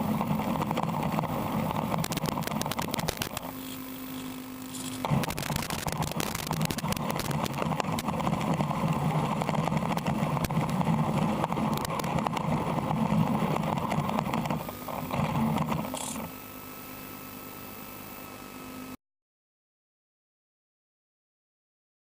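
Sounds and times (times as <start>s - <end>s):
rc car motor whirring: 0.0s - 16.5s.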